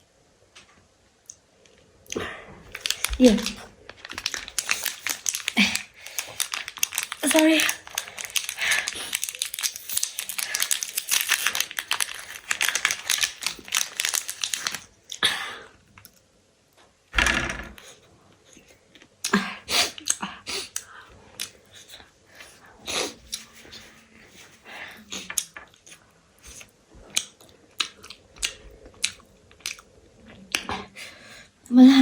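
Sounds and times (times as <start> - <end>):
food packaging crinkling: 2.7 - 15.2.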